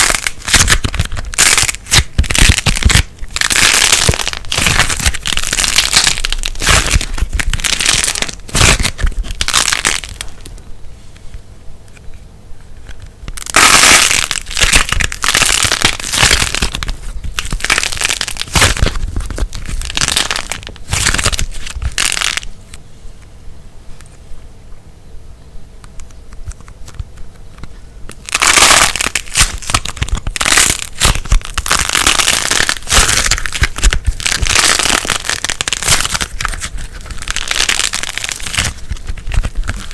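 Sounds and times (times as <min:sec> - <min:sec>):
slime crackling and popping: 0:00.0 - 0:10.5, 0:13.3 - 0:22.5, 0:28.1 - 0:39.9.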